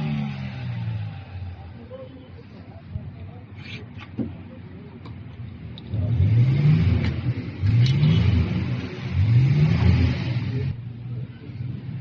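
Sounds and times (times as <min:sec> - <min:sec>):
diesel engine revving: 0:00.0 - 0:01.8, 0:05.5 - 0:12.0.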